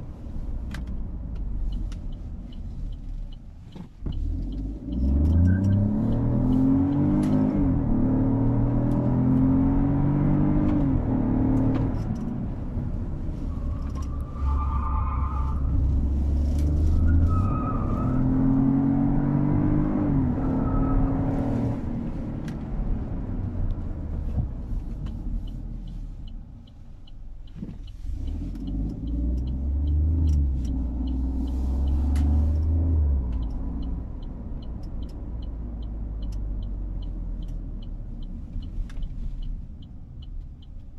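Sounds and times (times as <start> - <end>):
car engine accelerating through gears: 0.7 - 40.9.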